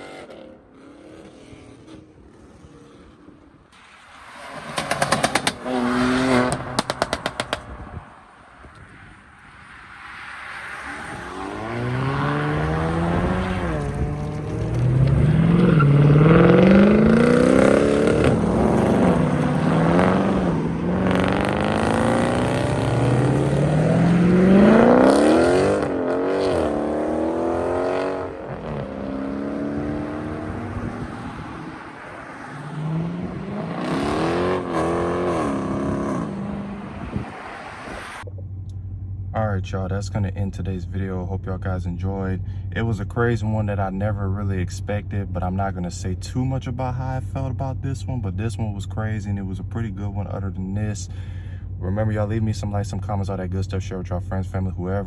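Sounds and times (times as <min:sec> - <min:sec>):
car engines accelerating hard: 0:04.5 - 0:08.0, 0:08.8 - 0:38.8.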